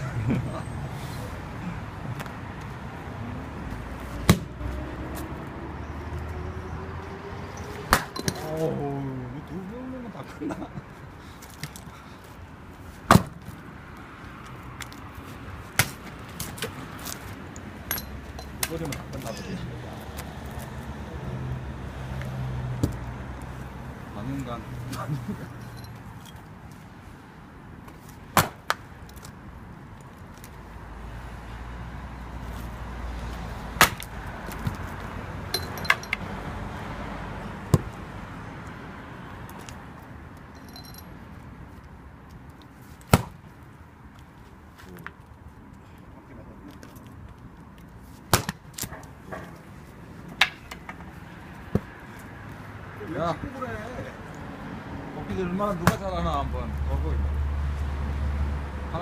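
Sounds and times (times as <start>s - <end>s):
axe chopping firewood: 4.2s - 4.6s, 7.8s - 8.6s, 13.1s - 13.5s, 15.8s - 16.8s, 17.9s - 19.2s, 22.8s - 23.0s, 28.3s - 28.8s, 33.8s - 34.8s, 37.7s - 38.0s, 43.0s - 43.4s, 48.3s - 49.5s.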